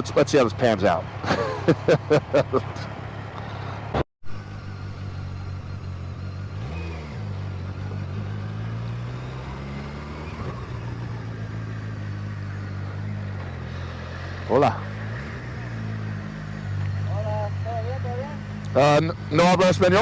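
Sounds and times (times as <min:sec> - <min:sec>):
motorcycle engine running: 0:04.3 - 0:20.0.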